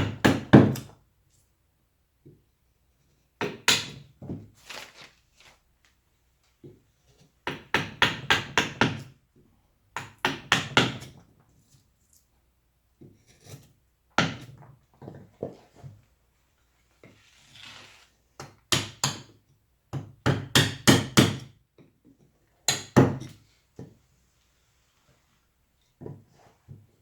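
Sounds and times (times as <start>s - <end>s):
mallet striking chisel into wood: 0.0s - 0.9s, 10.0s - 11.1s, 18.7s - 19.3s, 19.9s - 21.5s, 22.7s - 23.3s
chisel scraping wood: 13.1s - 13.8s.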